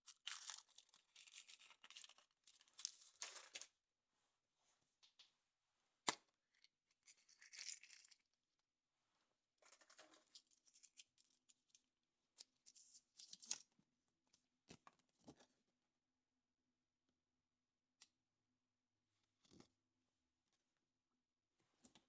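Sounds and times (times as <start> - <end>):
foil wrapper crinkling: 0.1 - 3.7.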